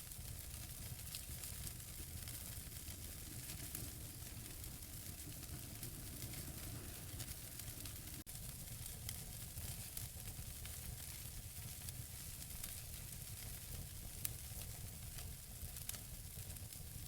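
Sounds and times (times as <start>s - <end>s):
burning logs crackling and popping: 0.0s - 17.0s
fire hissing and rumbling: 0.0s - 17.0s.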